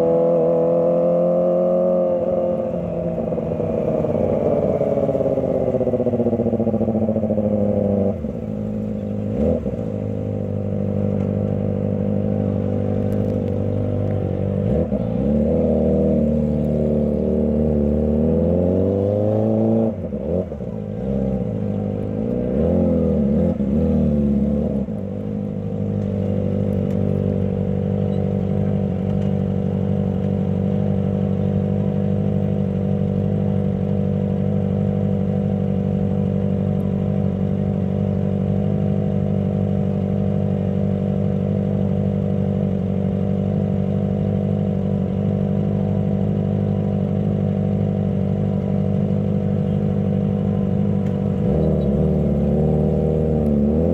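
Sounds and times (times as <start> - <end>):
motorcycle engine revving and idling: 0.0 - 53.9.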